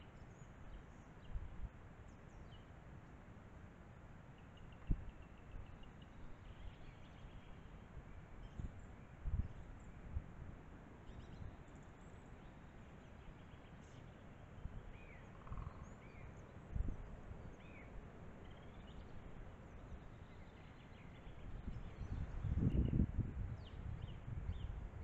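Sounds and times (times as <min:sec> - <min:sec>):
faint bird chirps: 0:04.3 - 0:10.2, 0:11.0 - 0:24.8.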